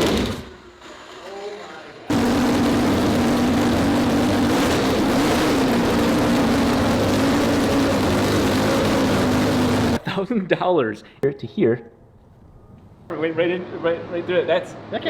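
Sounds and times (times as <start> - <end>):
rotary engine running: 2.1 - 10.0.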